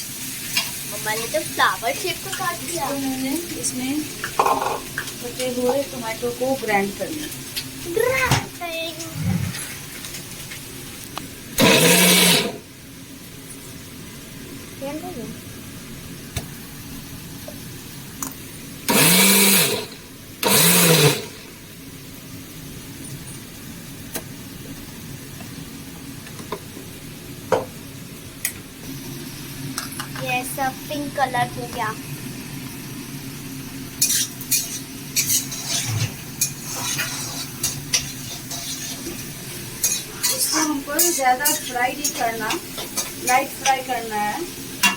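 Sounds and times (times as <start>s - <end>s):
gravy sizzling in a pan: 0.0s - 44.9s
electric mixer grinder motor: 11.6s - 12.6s, 18.9s - 21.5s
spoon scraping a pan: 34.0s - 43.9s.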